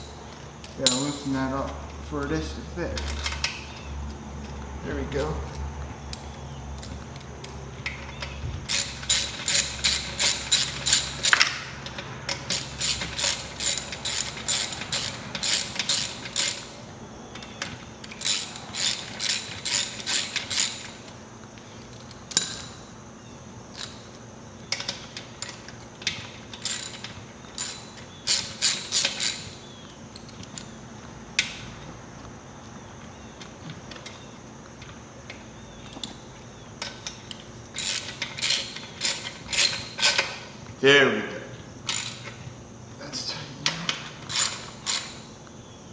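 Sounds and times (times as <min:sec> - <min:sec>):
socket ratchet clicking: 0:00.0 - 0:01.4, 0:06.1 - 0:16.9, 0:17.6 - 0:21.1, 0:24.7 - 0:30.8, 0:36.8 - 0:40.5, 0:41.8 - 0:42.4, 0:43.9 - 0:45.3.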